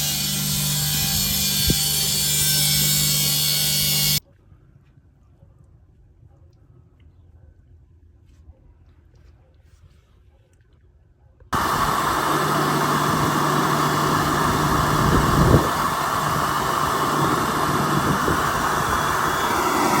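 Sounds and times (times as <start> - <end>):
water extraction machine running: 11.6 - 20.0.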